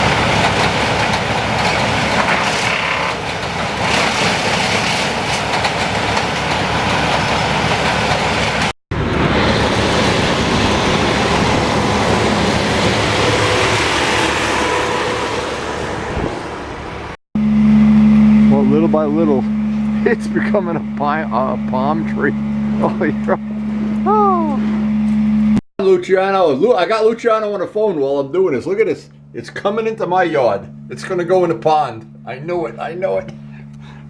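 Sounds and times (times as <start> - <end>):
heavy machinery clattering rumble: 0.0 - 14.2.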